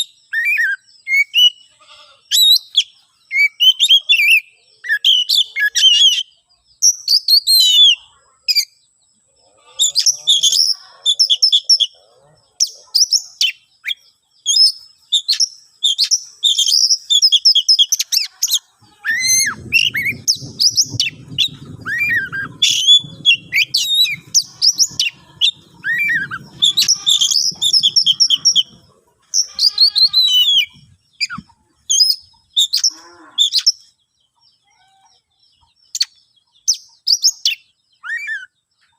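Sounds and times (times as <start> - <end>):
bird singing varied whistles: 0.0 - 1.6, 2.3 - 8.8, 13.0 - 28.8, 35.9 - 38.6
low rough buzz: 18.8 - 29.4.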